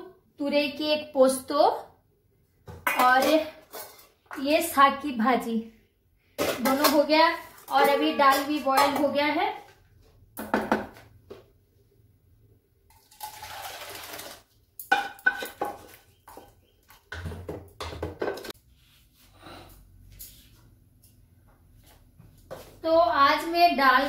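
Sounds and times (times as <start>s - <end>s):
pots and utensils clattering: 2.8s - 4.2s, 6.4s - 9.2s, 13.2s - 18.6s.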